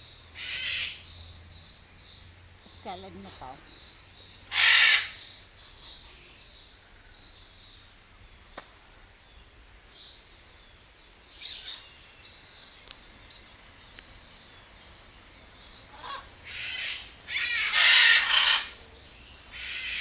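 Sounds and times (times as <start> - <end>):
birds chirping: 0.0 - 20.0
macaw squawk: 0.4 - 1.0, 4.5 - 6.0, 15.9 - 18.8, 19.5 - 20.0.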